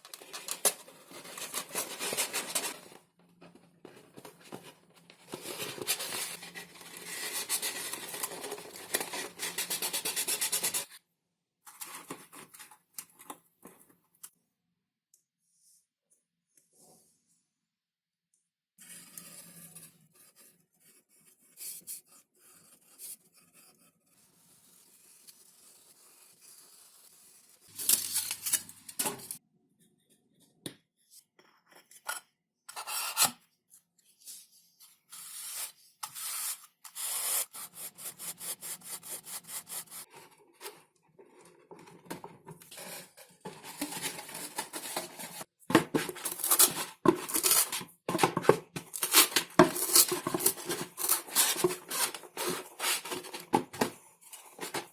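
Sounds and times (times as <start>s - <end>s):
rubbing and scraping foam: 42.7s - 54.9s.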